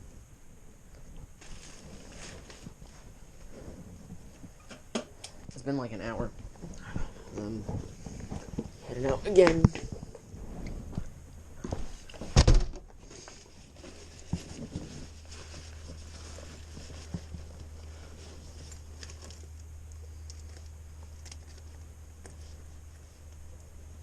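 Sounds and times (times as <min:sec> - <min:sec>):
steady low rumble: 0:05.4 - 0:12.2
loud thunk: 0:12.4 - 0:12.8.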